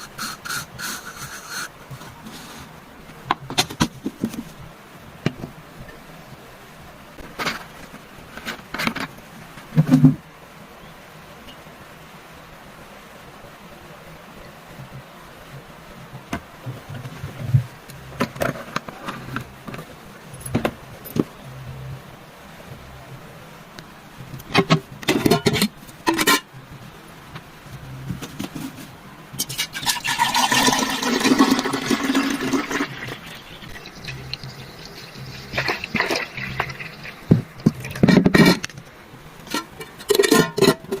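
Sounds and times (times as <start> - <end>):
liquid pouring: 29.6 - 38.1.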